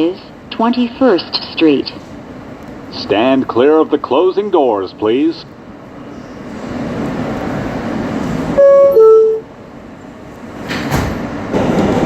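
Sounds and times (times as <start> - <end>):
subway doors shutting: 0.0 - 12.0
train running noise: 0.0 - 12.0
two-tone door chime: 8.6 - 9.4.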